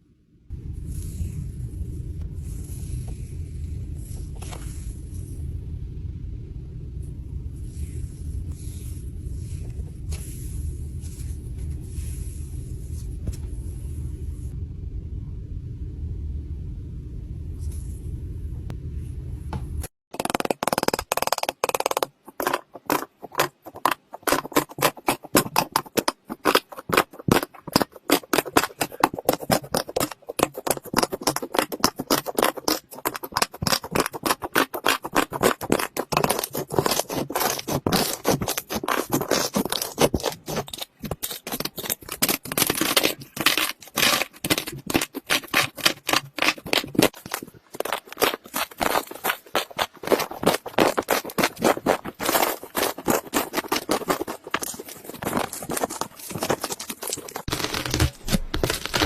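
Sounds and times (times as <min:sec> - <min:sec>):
slime crackling and popping: 0:20.2 - 0:59.0.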